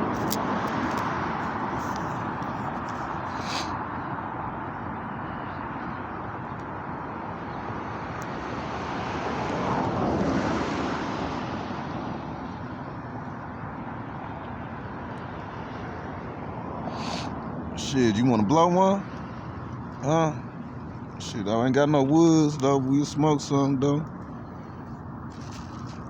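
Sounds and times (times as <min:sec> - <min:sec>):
outdoor traffic noise: 0:00.0 - 0:26.0
vehicle passing: 0:07.8 - 0:13.2, 0:14.1 - 0:26.0.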